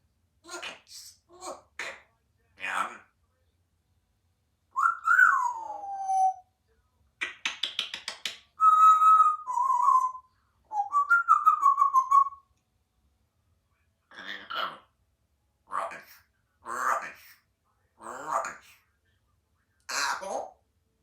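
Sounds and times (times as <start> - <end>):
parrot whistling: 4.8 - 6.4, 8.6 - 12.4
parrot clicks: 7.2 - 8.4.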